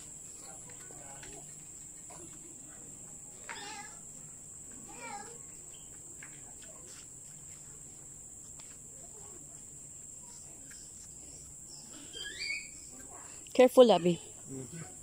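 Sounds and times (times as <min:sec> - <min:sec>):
high-pitched insect drone: 0:10.2 - 0:13.2.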